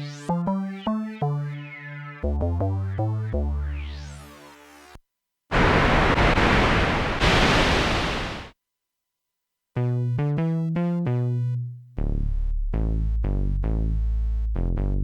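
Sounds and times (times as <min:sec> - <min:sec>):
synthesizer hiss-like noise: 0:05.5 - 0:08.5
synthesizer bass and chord notes: 0:09.8 - 0:15.0.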